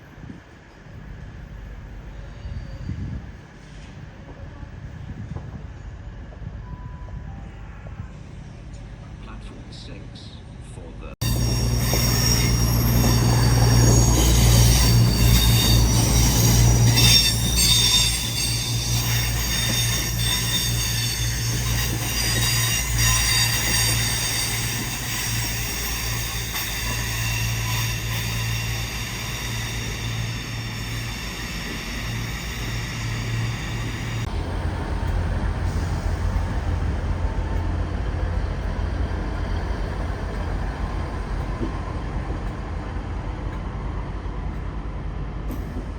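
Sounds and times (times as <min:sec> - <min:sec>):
train wheels squealing: 0:02.0 - 0:04.1, 0:11.2 - 0:42.0.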